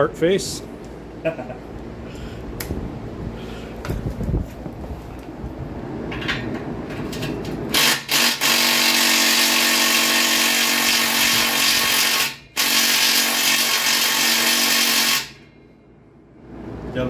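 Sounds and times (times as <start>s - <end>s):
power tool whine: 7.7s - 15.4s.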